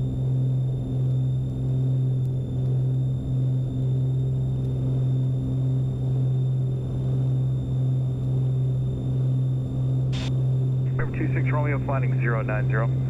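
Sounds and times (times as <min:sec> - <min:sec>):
propeller plane cabin drone: 0:00.0 - 0:13.0.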